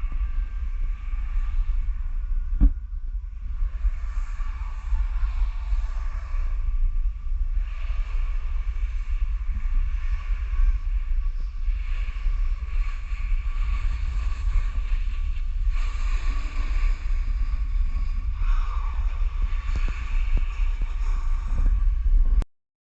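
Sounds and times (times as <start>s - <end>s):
wind buffeting microphone: 0.0s - 22.4s.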